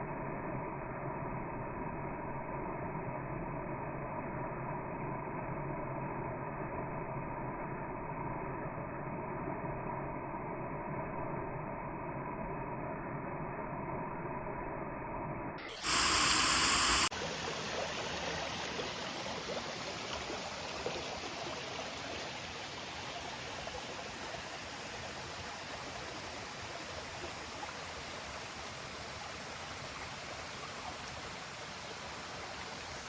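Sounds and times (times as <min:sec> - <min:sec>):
loud hiss: 0:15.7 - 0:17.1
muffled steady hum: 0:15.7 - 0:17.1.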